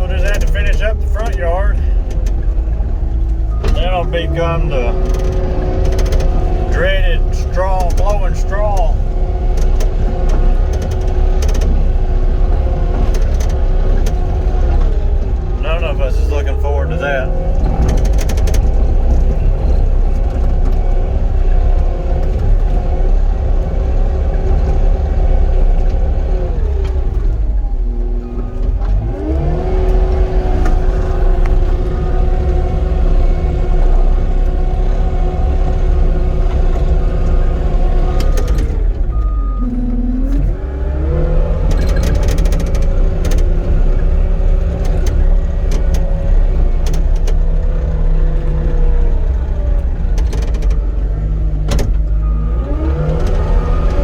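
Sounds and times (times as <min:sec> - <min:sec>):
diesel engine at high revs: 0:00.0 - 0:54.0.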